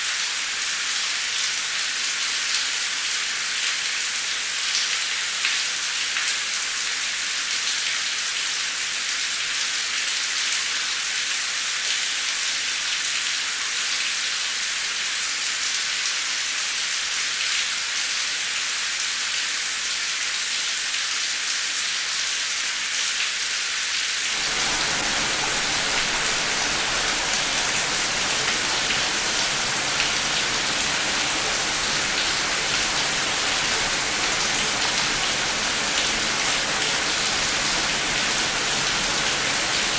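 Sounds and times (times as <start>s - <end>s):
heavy rain falling: 24.3s - 39.9s.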